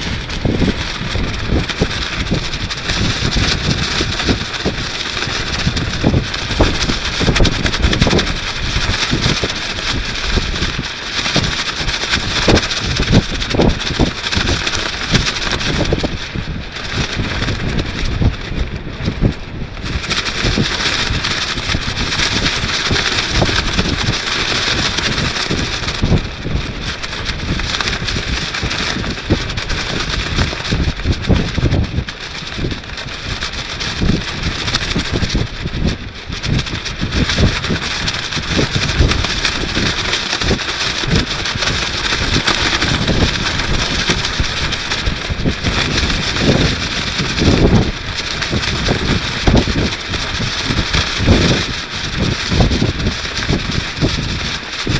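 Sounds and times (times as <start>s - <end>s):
gusting wind buffeting microphone: 0.0s - 54.9s
plastic rainsuit rustling: 0.0s - 54.9s.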